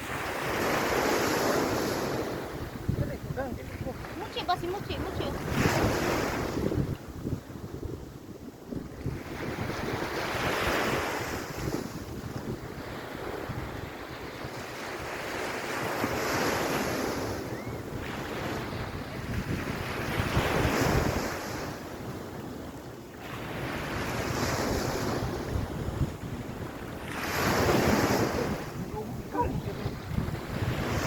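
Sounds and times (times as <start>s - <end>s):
wind buffeting microphone: 0.0s - 15.1s, 17.0s - 22.6s, 23.5s - 31.0s
waves washing onto beach: 0.0s - 31.0s.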